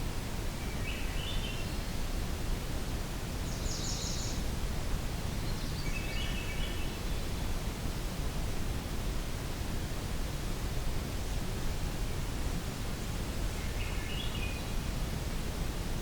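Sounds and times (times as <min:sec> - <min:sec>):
faint birdsong: 0:00.1 - 0:02.2, 0:02.8 - 0:07.8, 0:13.4 - 0:15.2.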